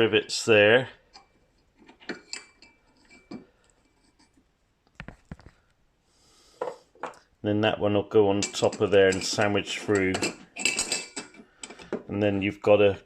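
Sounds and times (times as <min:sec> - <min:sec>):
small metal parts clinking: 0:08.4 - 0:12.0.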